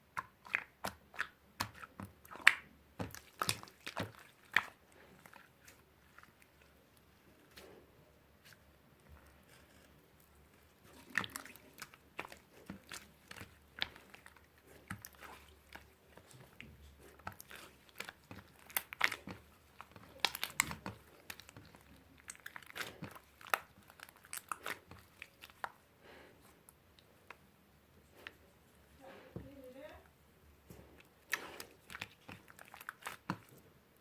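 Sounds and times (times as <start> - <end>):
crunching and crackling: 8.4 - 26.2, 30.7 - 33.7.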